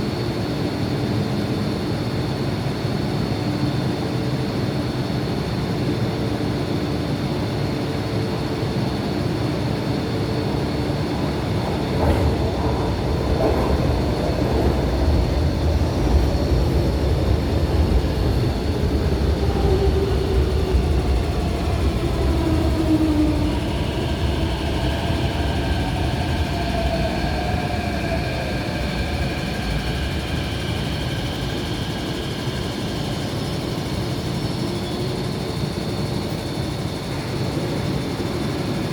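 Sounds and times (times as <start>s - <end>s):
train rumbling: 9.2s - 38.9s.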